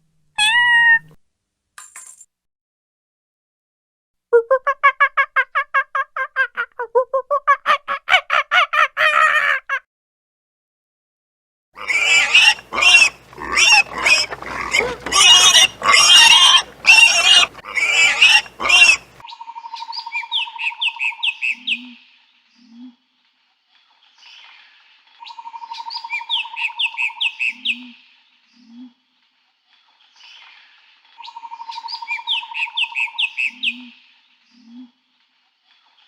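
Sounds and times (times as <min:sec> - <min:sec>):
fast pitched animal calls: 0:11.8 - 0:19.2
harsh squawking calls: 0:11.8 - 0:19.2.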